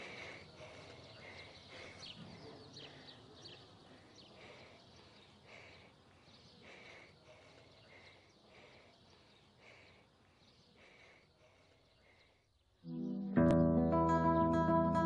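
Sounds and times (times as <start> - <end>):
birds chirping: 0.0 - 13.7.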